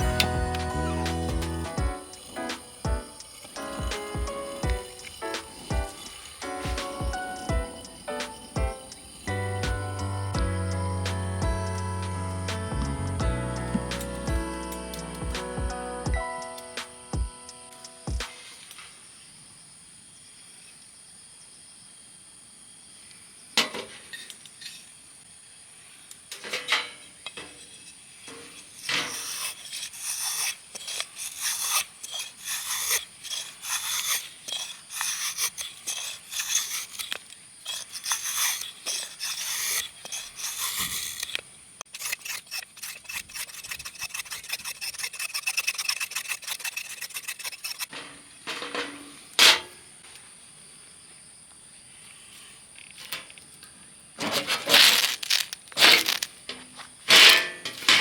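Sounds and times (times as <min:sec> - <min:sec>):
food preparation scraping: 0:00.0 - 0:15.5, 0:26.3 - 0:49.8, 0:54.2 - 0:58.0.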